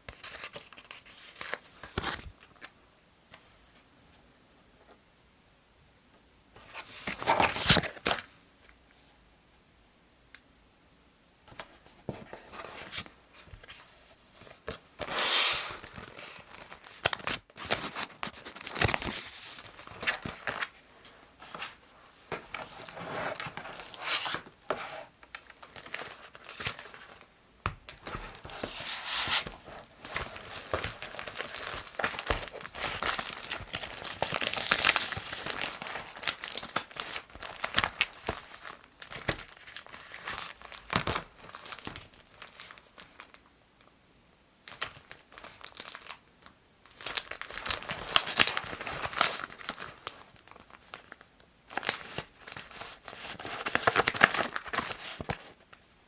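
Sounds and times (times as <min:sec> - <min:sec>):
paper tearing and crinkling: 0:28.0 - 0:42.1.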